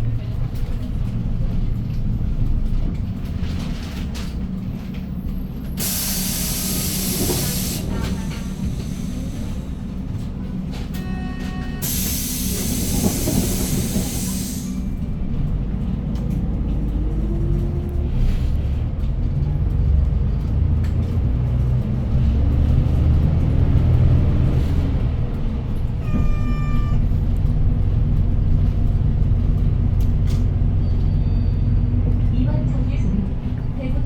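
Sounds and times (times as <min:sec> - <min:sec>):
bus engine rumbling: 0:00.0 - 0:34.0
compressed air hiss: 0:05.8 - 0:09.7, 0:11.8 - 0:14.8
short electronic beep: 0:26.0 - 0:27.0.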